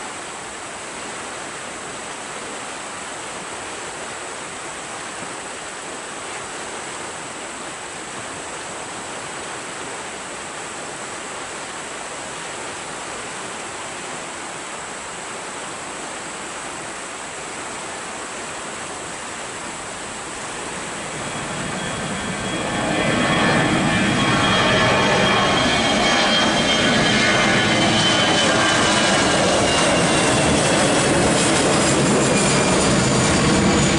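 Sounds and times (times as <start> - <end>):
steady rushing noise: 0.0 - 33.9
airliner engines: 19.1 - 33.9
high engine whine: 20.4 - 33.9.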